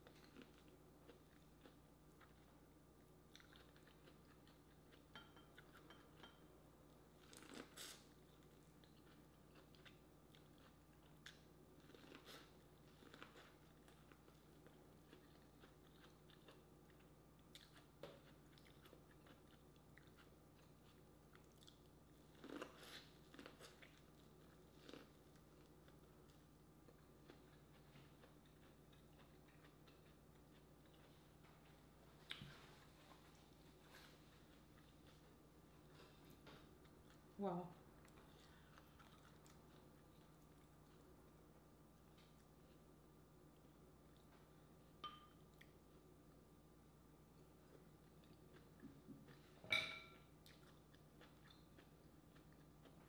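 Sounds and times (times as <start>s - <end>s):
chewing corn on the cob: 0.0s - 5.8s, 7.2s - 31.2s, 37.9s - 41.4s, 47.3s - 49.6s, 50.4s - 53.0s.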